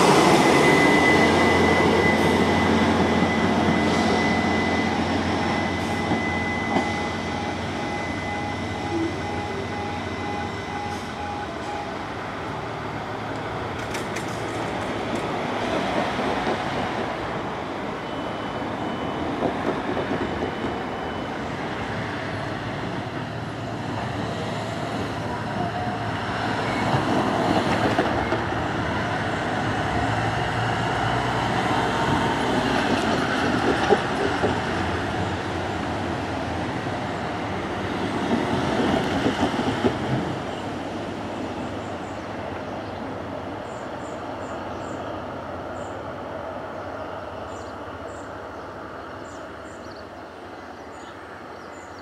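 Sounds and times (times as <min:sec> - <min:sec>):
diesel train engine: 0:00.0 - 0:52.0
train wheels on rails: 0:00.0 - 0:52.0.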